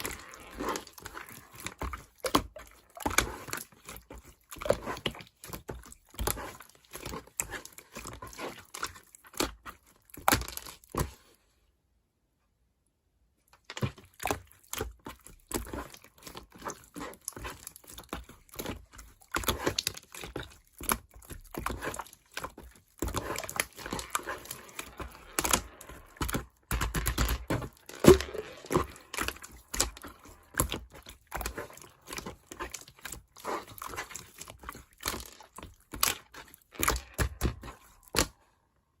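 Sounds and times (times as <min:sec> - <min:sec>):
slime squished by hand: 0:13.8 - 0:38.4.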